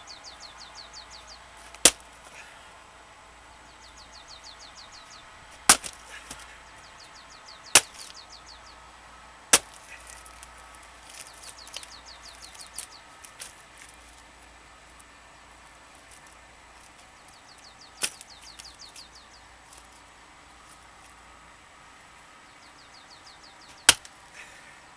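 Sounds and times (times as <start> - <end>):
axe striking log: 1.8 - 2.1, 5.6 - 6.4, 7.8 - 8.1, 9.5 - 10.3, 23.8 - 24.1.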